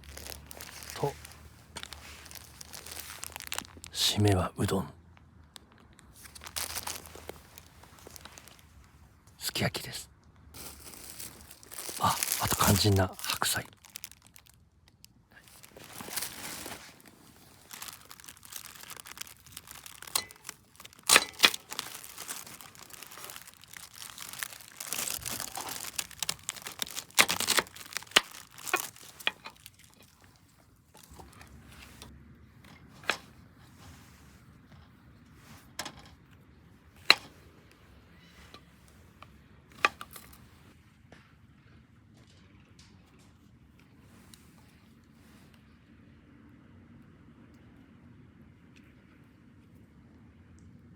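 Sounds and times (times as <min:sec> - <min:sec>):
plastic packaging crinkling and tearing: 0:00.0 - 0:04.0, 0:05.6 - 0:08.9, 0:10.6 - 0:32.1.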